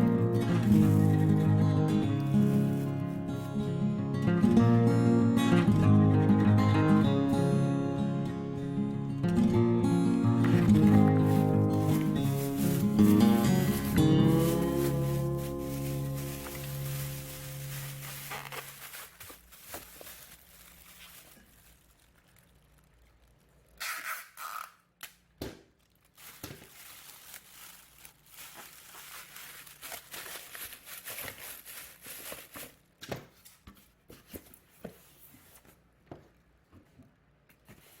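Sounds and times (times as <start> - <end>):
rustling handling noises: 0.0 - 3.6, 10.4 - 23.6, 25.8 - 38.0.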